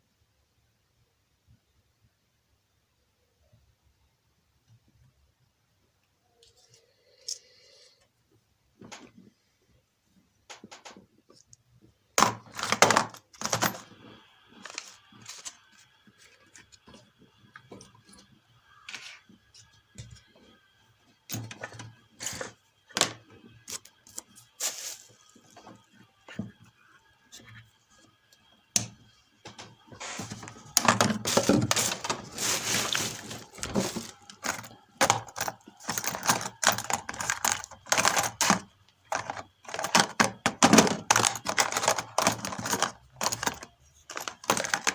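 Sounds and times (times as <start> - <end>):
tools clattering on workbench: 12.2 - 13.9, 29.5 - 44.9.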